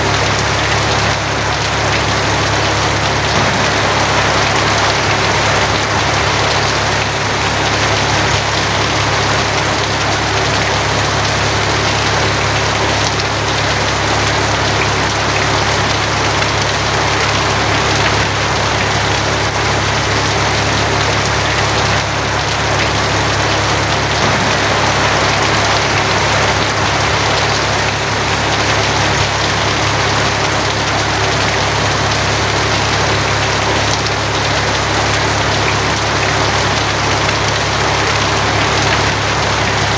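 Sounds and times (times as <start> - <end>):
heavy rain on a tin roof: 0.0 - 39.9
low rumble: 3.4 - 7.8, 24.0 - 29.6.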